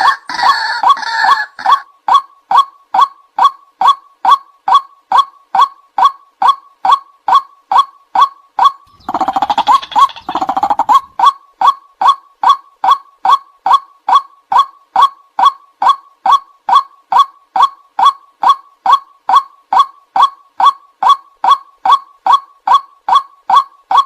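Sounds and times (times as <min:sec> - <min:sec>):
waterhen calling: 0:08.6 - 0:11.3.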